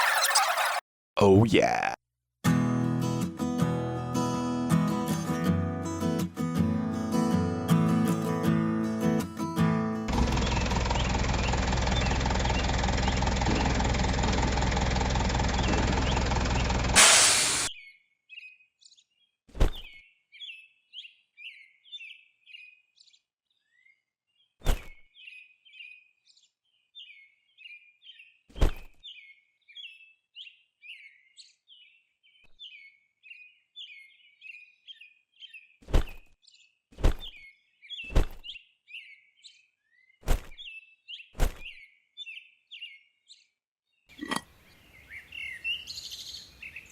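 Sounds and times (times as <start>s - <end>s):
music: 2.4s - 10.1s
birds chirping: 10.1s - 16.9s, 44.1s - 46.9s.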